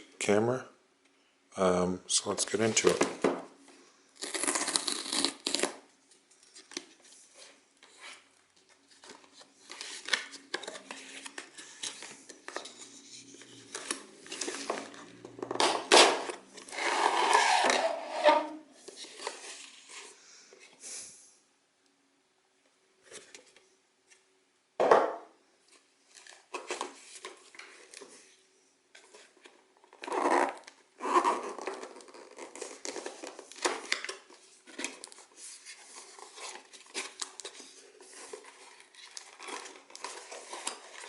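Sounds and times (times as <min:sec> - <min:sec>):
cardboard and plastic rustling: 0:02.4 - 0:03.5, 0:05.4 - 0:17.9, 0:25.7 - 0:28.4, 0:31.4 - 0:41.0
packaging crinkling: 0:29.9 - 0:41.0.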